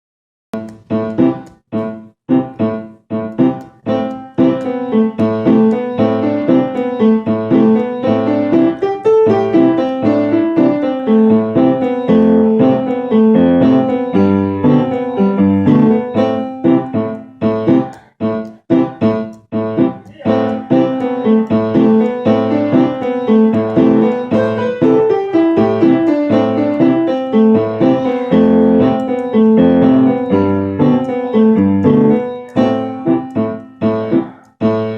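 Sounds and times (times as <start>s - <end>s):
solo piano: 0.5s - 34.9s.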